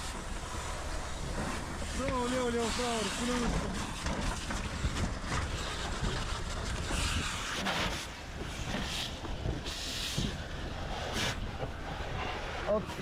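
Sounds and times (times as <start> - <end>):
hissing water spray from hose: 0.0 - 13.0.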